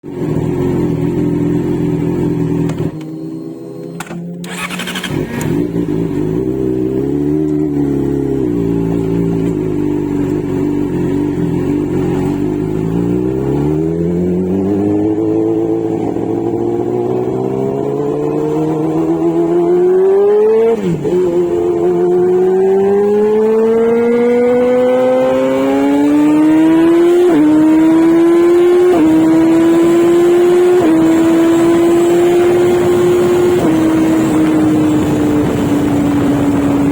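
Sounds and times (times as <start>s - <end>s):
motorcycle engine accelerating: 0.0s - 36.9s.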